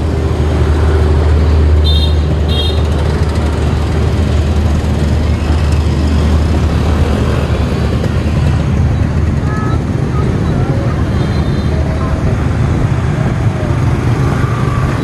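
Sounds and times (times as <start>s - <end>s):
train coaches rolling on rails: 0.0s - 15.0s.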